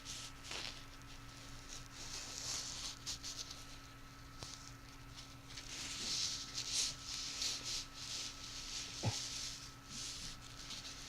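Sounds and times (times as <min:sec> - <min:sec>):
faint electrical hum: 0:00.0 - 0:11.0
scratching and rustling of object: 0:00.0 - 0:11.0.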